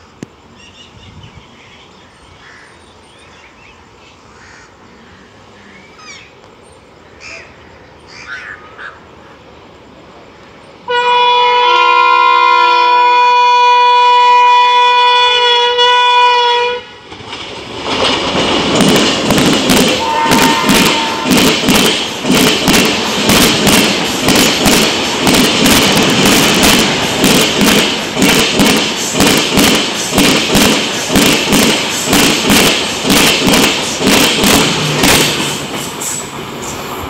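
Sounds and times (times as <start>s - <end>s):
train passing rail noise: 0.0s - 37.0s
train horn blast: 10.9s - 17.2s, 19.8s - 21.7s.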